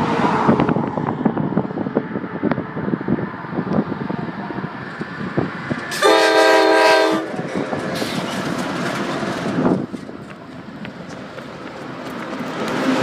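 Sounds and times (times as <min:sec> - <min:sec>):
train air horn blast: 0:05.9 - 0:07.4
train wheels clattering on rails: 0:06.8 - 0:13.0.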